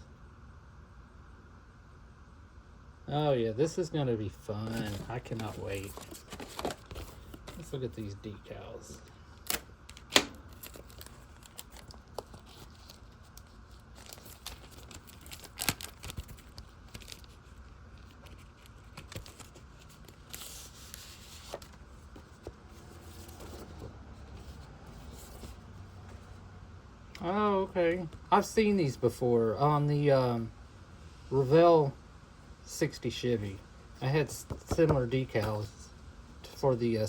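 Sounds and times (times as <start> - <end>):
plastic packaging crinkling: 4.6 - 7.8, 8.9 - 23.8.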